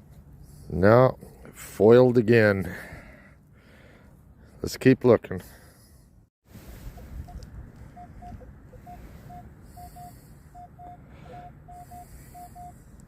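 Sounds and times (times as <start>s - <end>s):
lower-pitched blips: 7.2s - 12.9s
metal detector beeps: 7.2s - 13.0s.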